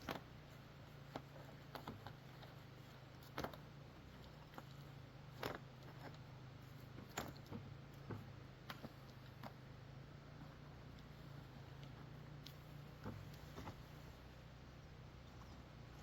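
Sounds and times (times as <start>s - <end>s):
low steady hum: 0.0s - 16.0s
faint clicks and taps: 1.0s - 6.3s, 10.9s - 14.1s.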